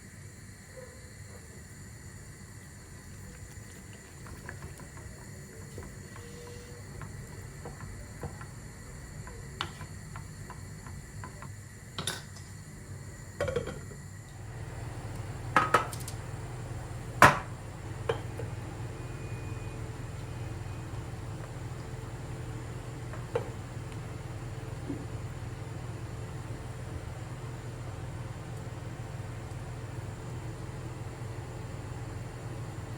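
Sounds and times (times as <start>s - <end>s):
low steady hum: 12.4s - 32.9s.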